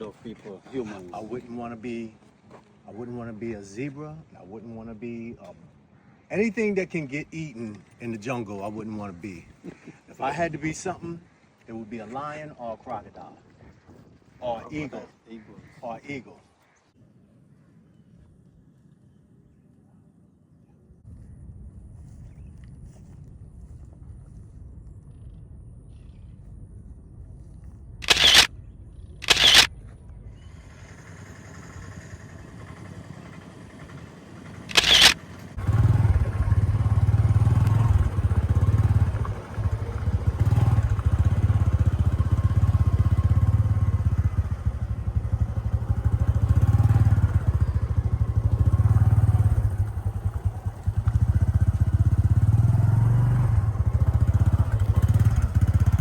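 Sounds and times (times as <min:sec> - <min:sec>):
short sharp noises: 0:28.0 - 0:28.5, 0:29.2 - 0:29.7, 0:34.7 - 0:35.2
small vehicle engine running: 0:28.0 - 0:28.5, 0:29.2 - 0:29.7, 0:30.5 - 0:56.0.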